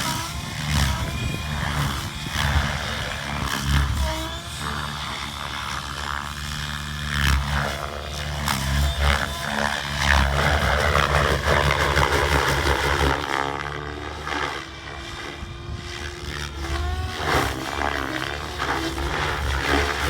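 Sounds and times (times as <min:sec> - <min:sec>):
motor and gear whine: 0:00.0 - 0:20.0
rc helicopter rotor hum: 0:00.0 - 0:20.0.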